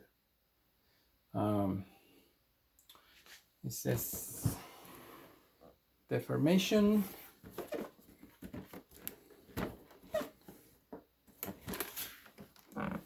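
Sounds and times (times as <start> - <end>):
cardboard and plastic packaging rustling: 7.1 - 13.0.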